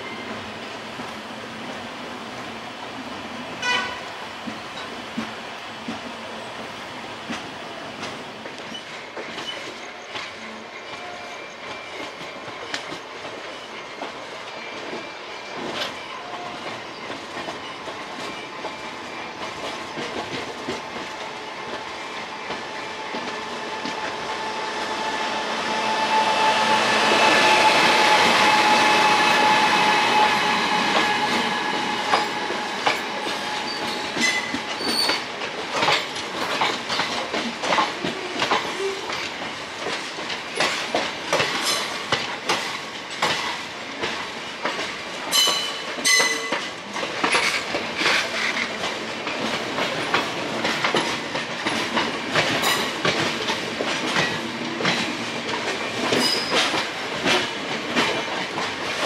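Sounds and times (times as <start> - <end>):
passing train: 0.0 - 59.0
train wheels clattering over rail joints: 30.9 - 59.0.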